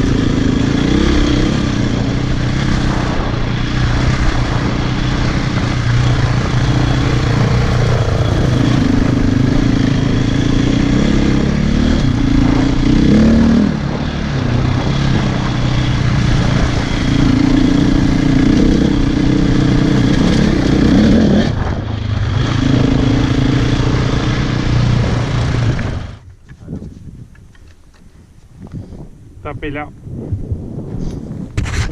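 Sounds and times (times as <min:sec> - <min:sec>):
motorcycle engine revving: 0:00.0 - 0:26.3.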